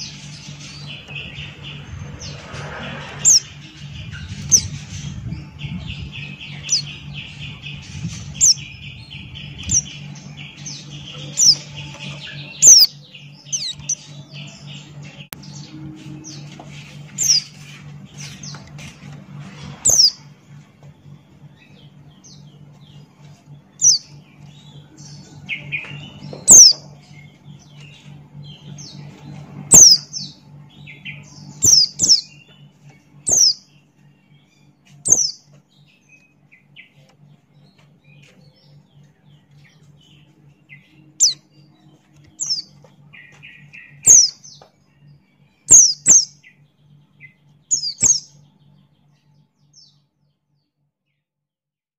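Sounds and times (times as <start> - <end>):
soft bird twittering: 0.0 - 50.0
steady low hum: 0.0 - 50.7
bird chirping sharp high chirps: 3.2 - 14.0, 25.4 - 26.8, 29.7 - 30.4, 31.0 - 32.5, 33.2 - 33.7, 35.0 - 35.4, 40.8 - 41.4, 42.4 - 44.6, 45.7 - 46.5, 47.7 - 48.4.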